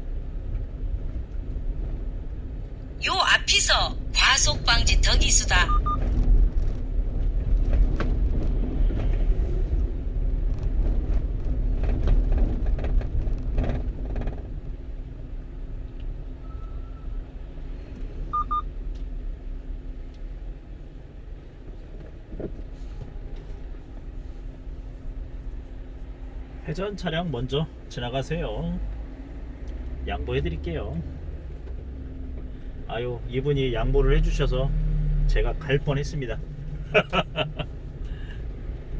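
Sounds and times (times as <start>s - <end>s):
truck road and engine rumble: 0.0s - 38.9s
short high beeps: 4.5s - 6.0s, 18.4s - 18.6s.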